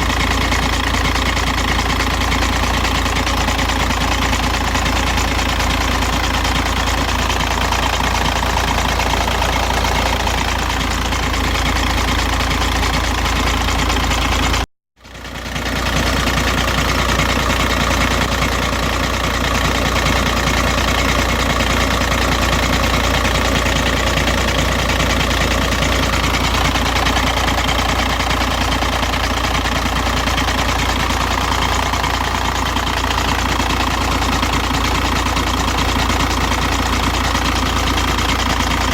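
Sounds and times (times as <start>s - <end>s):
diesel engine idling: 0.0s - 38.9s
strange noise from engine bottom: 0.0s - 38.9s.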